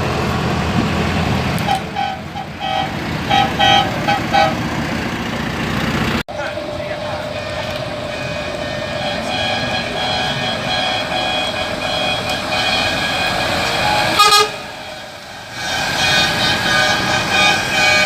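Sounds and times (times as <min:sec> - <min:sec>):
truck air horns: 0:01.6 - 0:04.7, 0:06.9 - 0:18.0.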